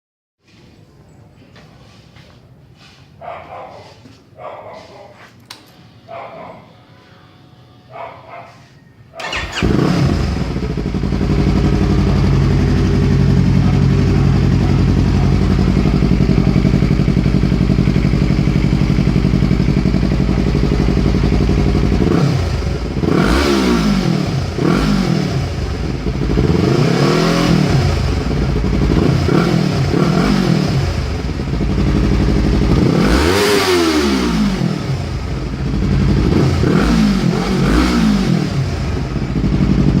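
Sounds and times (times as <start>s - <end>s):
motorcycle engine idling and revving: 9.2s - 40.0s.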